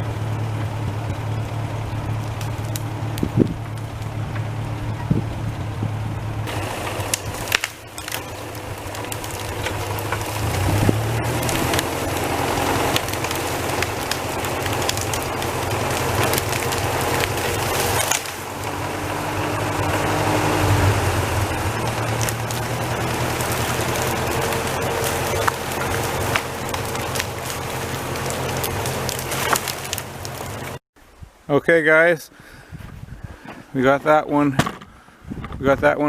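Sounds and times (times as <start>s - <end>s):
engine running under load: 0.0s - 30.8s
branches and wood snapping: 0.5s - 5.3s, 6.4s - 30.8s.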